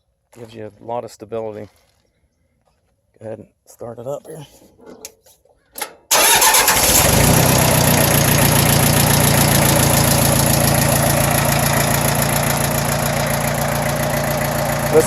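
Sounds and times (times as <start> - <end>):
diesel tractor engine idling: 6.1 - 15.0.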